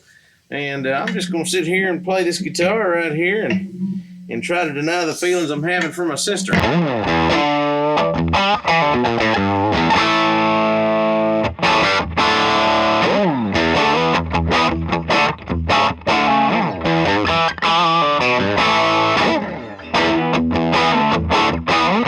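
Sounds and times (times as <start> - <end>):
distorted electric guitar: 6.2 - 22.0.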